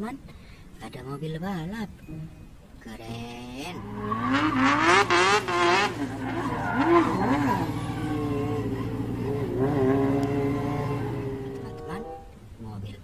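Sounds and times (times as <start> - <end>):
racing car engine revving: 3.7 - 12.5
high screeching: 3.8 - 12.4.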